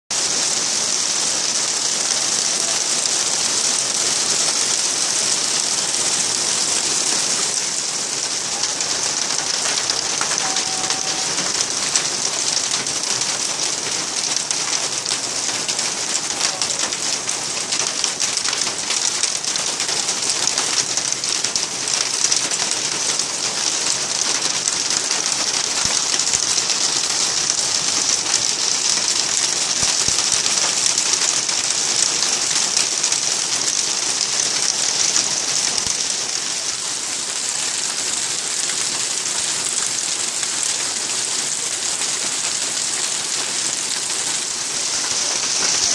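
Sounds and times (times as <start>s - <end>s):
heavy rain falling: 0.1s - 45.9s.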